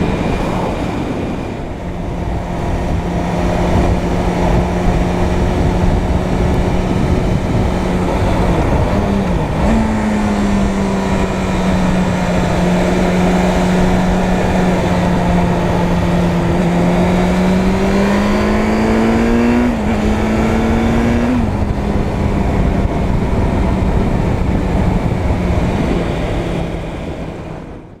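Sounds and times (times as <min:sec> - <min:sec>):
motorcycle engine running: 0:00.0 - 0:27.9
wind noise: 0:00.0 - 0:28.0.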